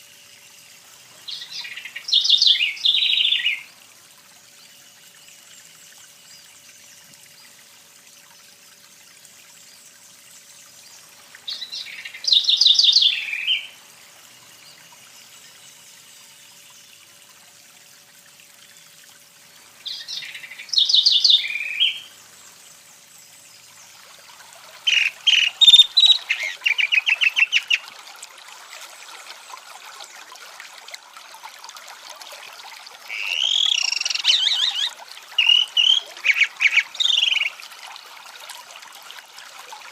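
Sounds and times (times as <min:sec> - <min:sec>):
songbird singing: 0:01.1 - 0:03.7, 0:09.6 - 0:13.8, 0:19.8 - 0:24.0, 0:24.8 - 0:27.9, 0:33.1 - 0:37.6.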